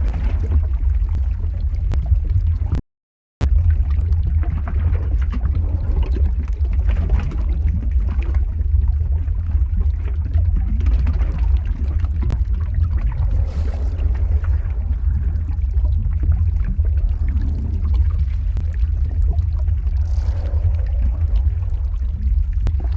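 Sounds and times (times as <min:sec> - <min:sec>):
deep lava rumble: 0:00.0 - 0:02.8, 0:03.4 - 0:22.9
lava crackles and pops: 0:00.0 - 0:02.8, 0:03.4 - 0:22.9.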